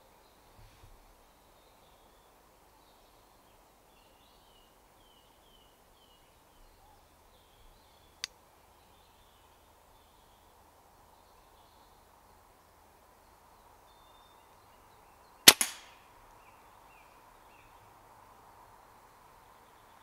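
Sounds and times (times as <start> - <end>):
small bird singing: 1.2 - 15.5
sharp click: 15.5 - 15.9.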